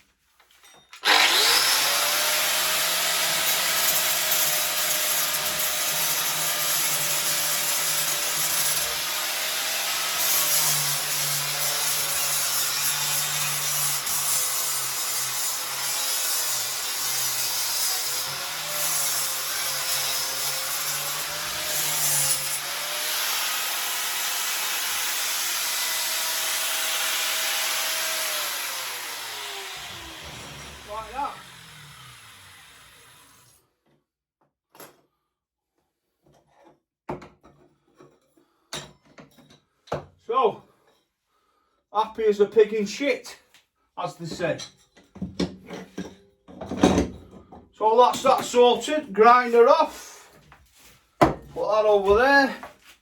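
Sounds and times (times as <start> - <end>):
angle grinder grinding metal: 1.0 - 33.6.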